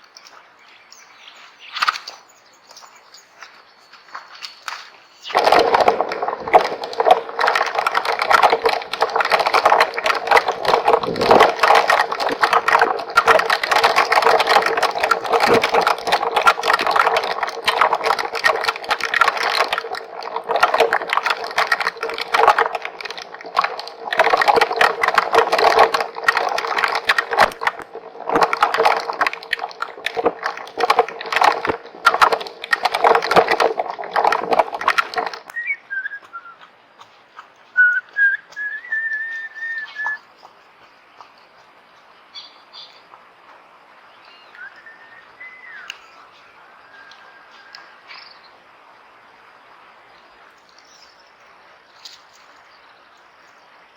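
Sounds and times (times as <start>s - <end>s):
hailstones drumming on plastic: 5.3s - 35.6s.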